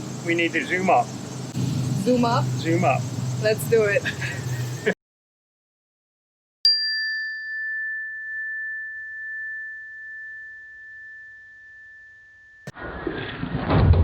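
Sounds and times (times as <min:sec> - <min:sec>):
struck ringing tone: 0:06.7 - 0:12.7.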